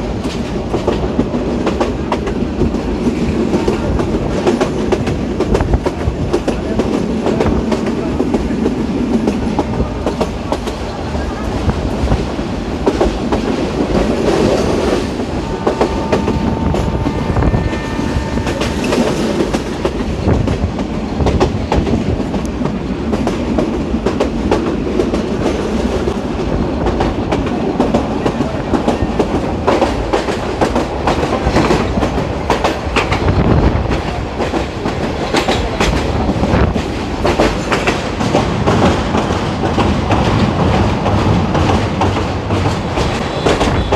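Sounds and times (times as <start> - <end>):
train rumbling: 0.0 - 43.9.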